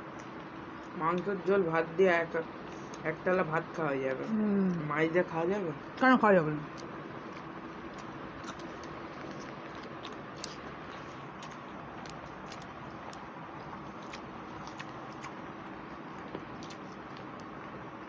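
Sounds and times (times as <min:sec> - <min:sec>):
people chewing food: 0:00.0 - 0:03.3, 0:04.0 - 0:18.0
steady background hum: 0:00.0 - 0:18.0
wet mouth clicks: 0:14.0 - 0:15.4.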